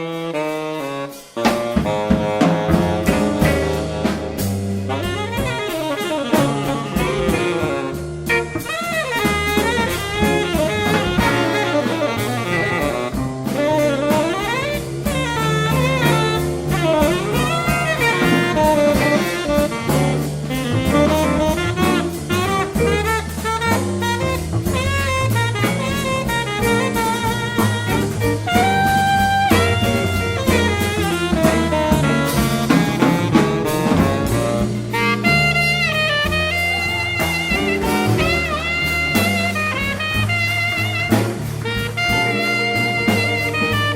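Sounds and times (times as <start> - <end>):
drums on cymbals: 0.0 - 43.9
saxophone melody: 0.0 - 43.9
walking bass: 0.4 - 43.9
guitar: 1.4 - 43.9.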